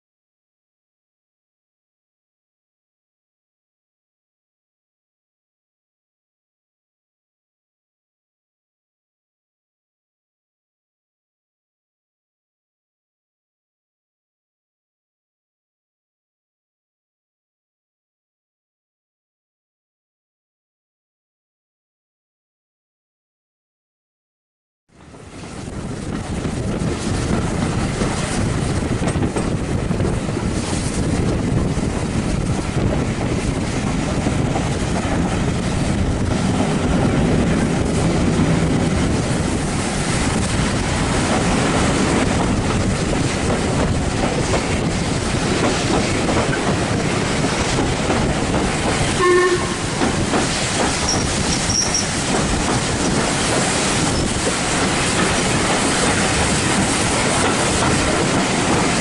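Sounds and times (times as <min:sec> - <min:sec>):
train wheels rattling on rails: 0:25.0 - 0:59.0
short pitched tone: 0:49.2 - 0:49.9.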